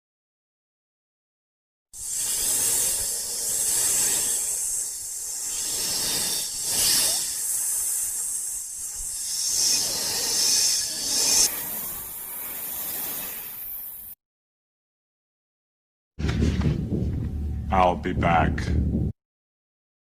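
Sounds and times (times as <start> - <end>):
hissing noise: 2.0 - 14.2.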